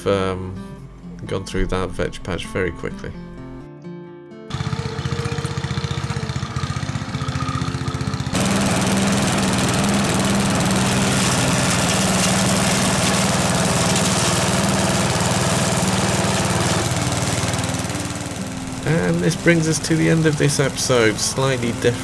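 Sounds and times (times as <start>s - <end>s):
small petrol engine running: 4.5s - 22.0s.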